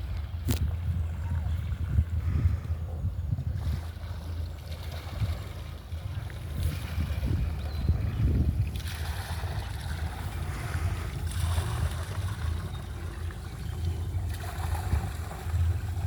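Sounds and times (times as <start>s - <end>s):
rushing wind: 0.0s - 4.1s, 6.4s - 12.7s
water noise: 0.0s - 16.0s.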